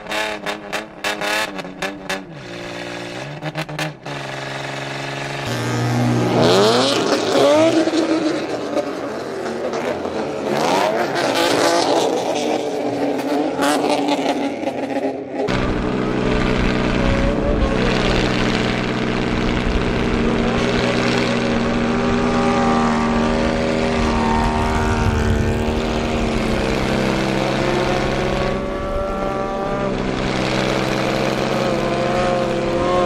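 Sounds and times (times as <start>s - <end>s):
engine and exhaust revving: 0.0s - 33.0s.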